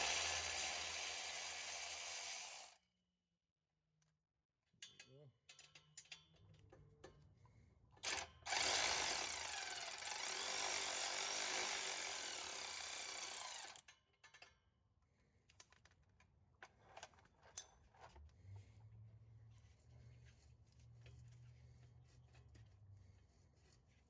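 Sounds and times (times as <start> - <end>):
impact wrench running: 0.0 - 2.7, 8.1 - 13.8
light clicks of handling parts: 15.3 - 18.4.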